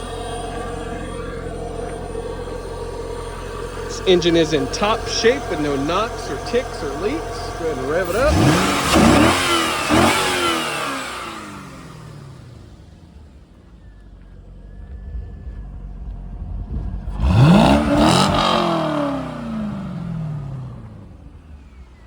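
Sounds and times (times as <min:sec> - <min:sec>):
car engine revving and idling: 0:00.0 - 0:22.0.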